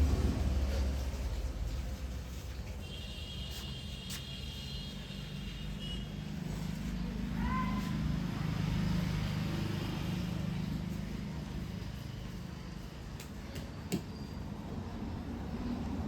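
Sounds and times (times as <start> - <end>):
low engine rumble: 0.0 - 2.9.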